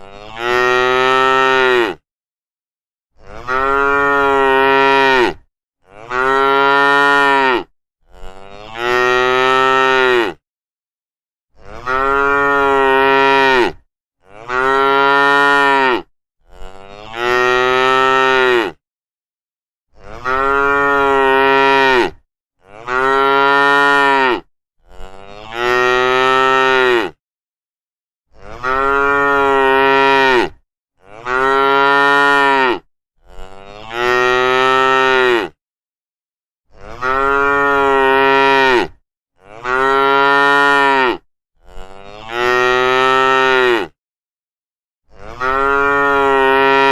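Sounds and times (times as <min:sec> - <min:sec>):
cattle mooing: 0:00.1 - 0:02.0, 0:03.2 - 0:10.4, 0:11.6 - 0:18.8, 0:20.1 - 0:27.2, 0:28.4 - 0:35.6, 0:36.7 - 0:44.0, 0:45.2 - 0:46.9.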